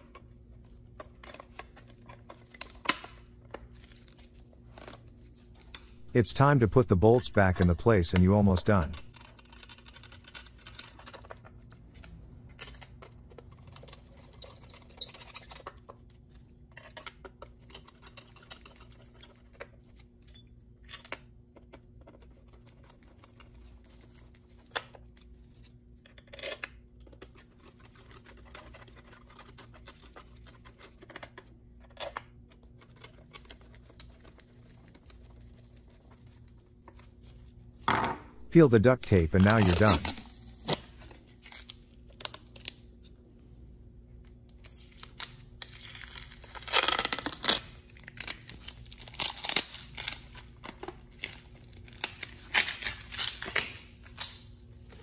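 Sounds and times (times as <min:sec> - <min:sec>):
steady low hum: 0:03.2 - 0:09.7, 0:34.9 - 0:42.0.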